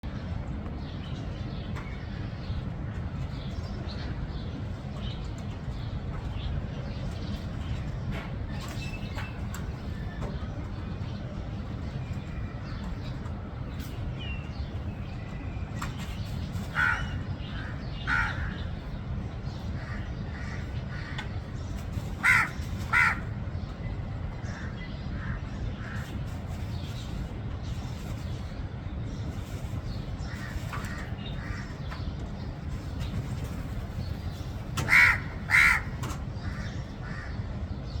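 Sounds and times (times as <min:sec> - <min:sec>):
crow cawing: 0:16.8 - 0:18.6, 0:22.2 - 0:23.3, 0:34.8 - 0:37.3.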